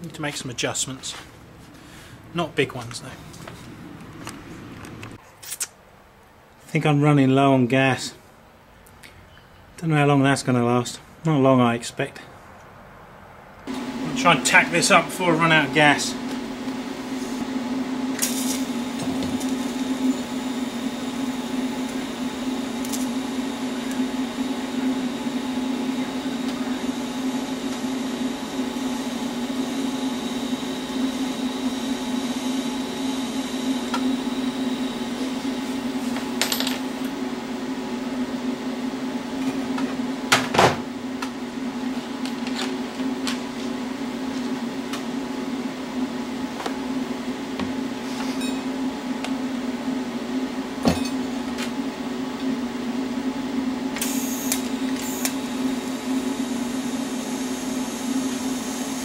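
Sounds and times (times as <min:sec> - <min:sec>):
welding machine humming: 0:13.7 - 0:38.3, 0:48.0 - 0:59.0
fizzy welding hiss: 0:18.2 - 0:18.8.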